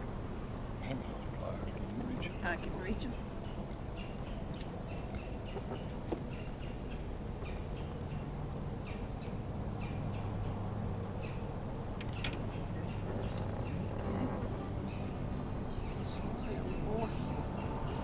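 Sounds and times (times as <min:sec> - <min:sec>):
small birds chirping: 0:12.1 - 0:18.0
low steady rumble: 0:13.6 - 0:18.0.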